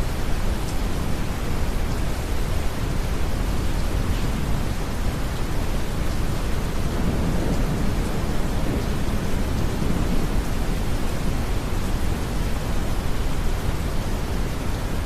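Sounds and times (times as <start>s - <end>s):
gentle rain: 0.0s - 15.0s
distant thunder roll: 6.7s - 12.3s.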